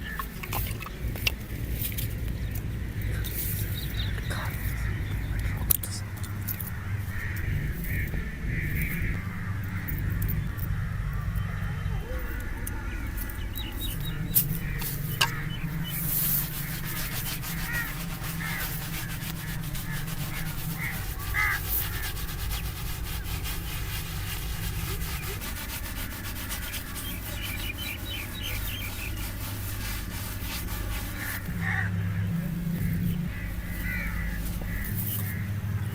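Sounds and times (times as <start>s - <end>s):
razor scraping hair: 13.3s - 31.9s.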